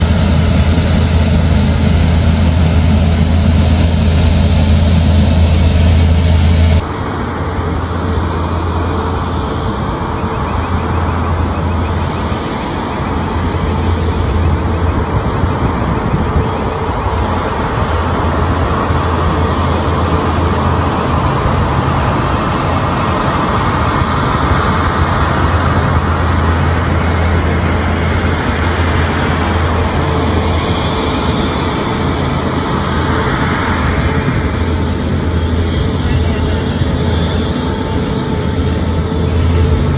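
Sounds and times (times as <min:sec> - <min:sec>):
deep hum: 0:00.0 - 0:06.9, 0:17.9 - 0:39.9
engine noise: 0:00.0 - 0:39.9.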